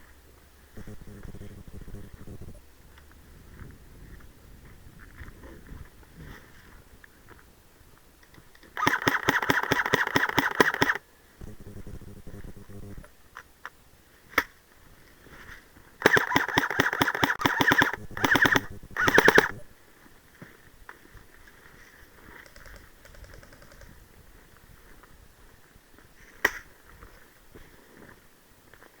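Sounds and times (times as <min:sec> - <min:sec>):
airsoft gun full-auto bursts: 0:08.8 - 0:11.0, 0:16.0 - 0:19.6
airsoft gun single shots: 0:08.8 - 0:11.0, 0:16.0 - 0:19.6.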